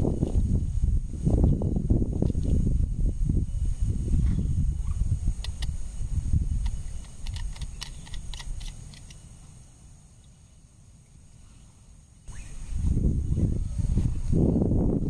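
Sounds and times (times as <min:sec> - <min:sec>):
high insect drone: 0:00.0 - 0:15.0
sharp clicks: 0:05.4 - 0:05.8, 0:06.6 - 0:09.2.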